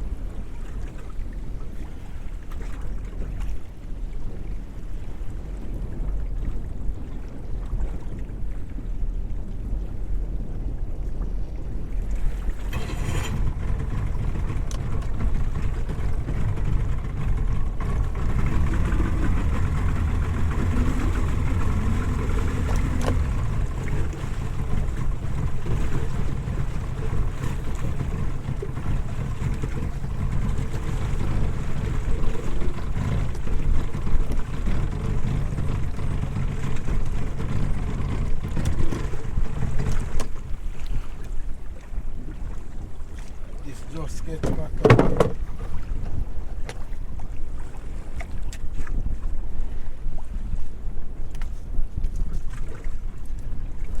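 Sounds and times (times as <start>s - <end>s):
water noise: 0.0s - 54.0s
wind: 0.0s - 54.0s
outboard motor running: 11.6s - 54.0s.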